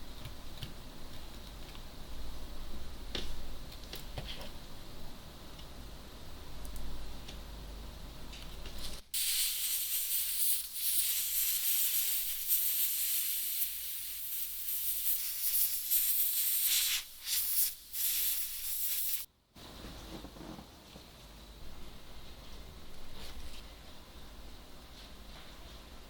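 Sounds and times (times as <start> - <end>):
spray jet hissing: 9.2 - 19.3.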